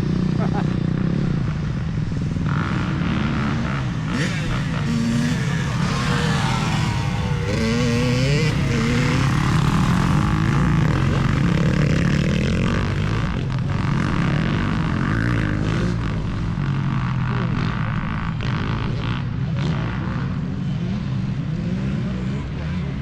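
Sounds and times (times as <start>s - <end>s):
dirt bike engine revving: 0.0s - 22.9s.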